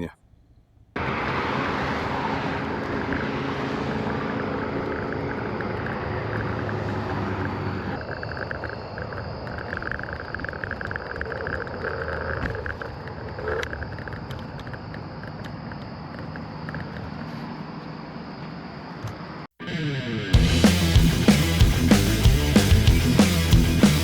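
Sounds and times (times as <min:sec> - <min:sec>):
vehicle engine running: 0:01.0 - 0:08.0, 0:20.4 - 0:24.0
pulsing chirring vehicle noise: 0:01.0 - 0:19.5.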